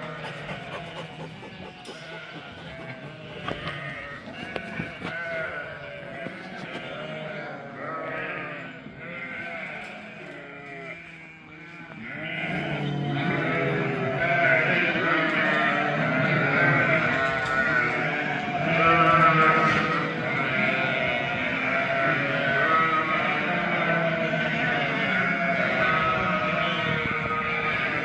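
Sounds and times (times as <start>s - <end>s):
livestock bleating: 0.0s - 28.0s.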